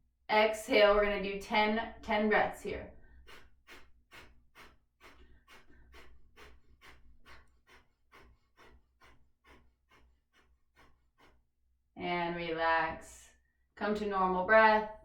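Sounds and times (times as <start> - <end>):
forceful nasal exhalations: 2.9 - 11.4.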